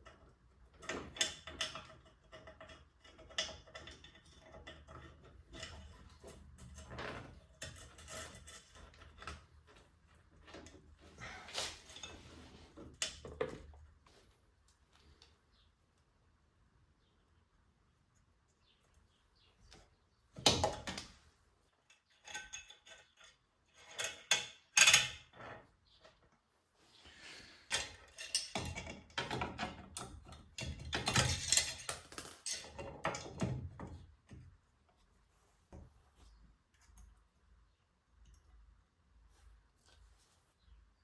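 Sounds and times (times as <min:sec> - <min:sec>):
metal tools clinking: 0:21.8 - 0:25.3, 0:27.7 - 0:33.5.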